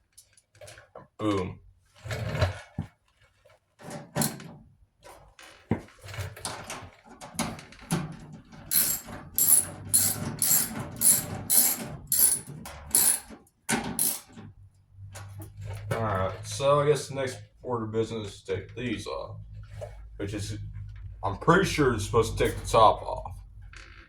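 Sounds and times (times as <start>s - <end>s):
ratchet wrench clicking: 8.7s - 13.3s, 14.0s - 14.3s.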